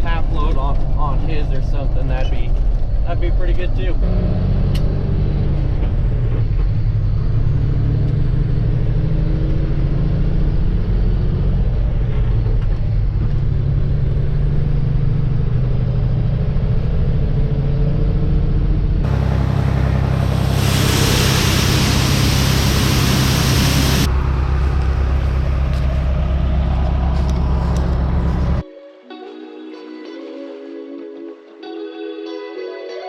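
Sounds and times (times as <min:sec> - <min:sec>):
truck engine running: 0:11.0 - 0:28.6
loud steady hiss: 0:19.1 - 0:24.1.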